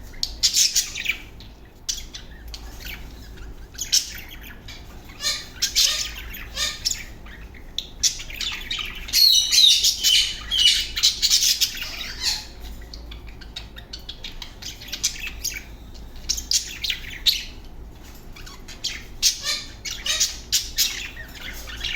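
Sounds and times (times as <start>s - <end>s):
budgerigars chattering: 0.0s - 21.9s.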